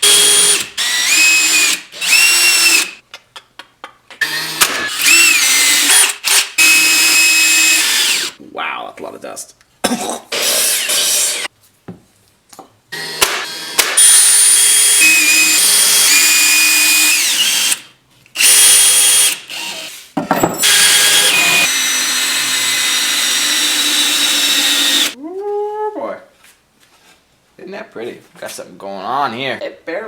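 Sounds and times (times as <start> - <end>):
power drill motor whine: 0.0 - 2.9, 4.2 - 8.3, 13.0 - 17.8, 18.4 - 19.9, 20.6 - 25.2.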